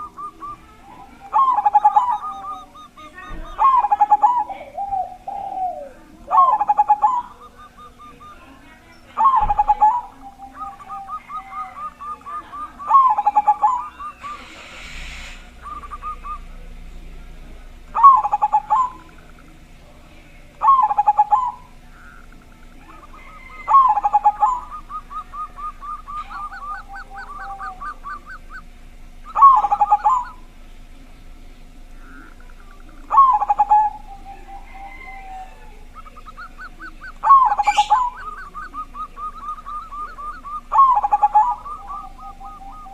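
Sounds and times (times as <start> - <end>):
dove cooing: 0.0 - 42.9
brief hiss: 14.2 - 15.7.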